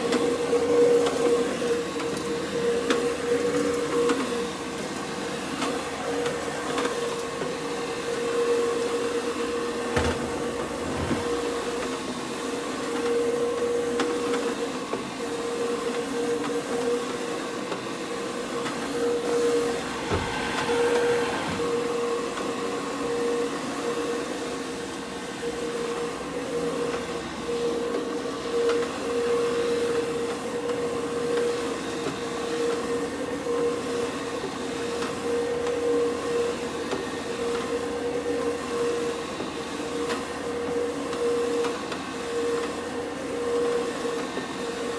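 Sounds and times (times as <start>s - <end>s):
carpet scrubbing machine humming: 4.5s - 13.5s, 17.6s - 22.1s.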